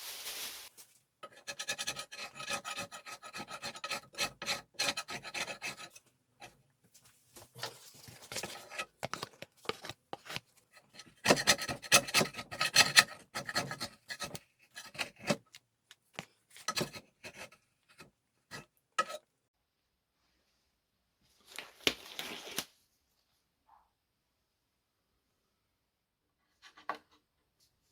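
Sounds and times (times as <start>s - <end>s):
hand tool rasping on wood: 1.2s - 6.0s, 10.8s - 15.4s, 16.7s - 19.2s.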